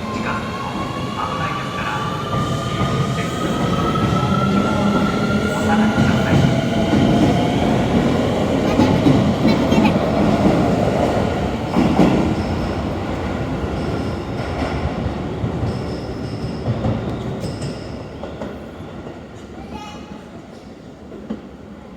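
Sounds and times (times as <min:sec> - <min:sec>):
electric train running rumble: 0:00.0 - 0:16.9.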